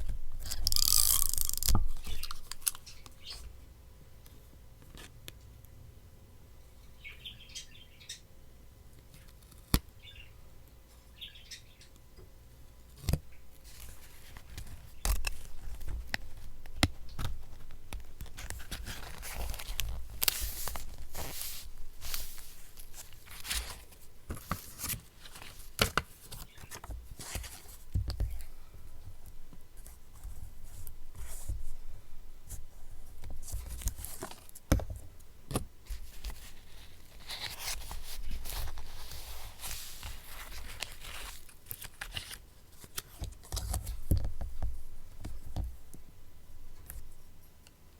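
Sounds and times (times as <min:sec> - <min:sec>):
paper rustling and tearing: 0:00.4 - 0:02.8, 0:17.1 - 0:27.7, 0:35.9 - 0:44.0
faint bird chirps: 0:07.0 - 0:08.3, 0:10.0 - 0:10.4, 0:11.1 - 0:12.0.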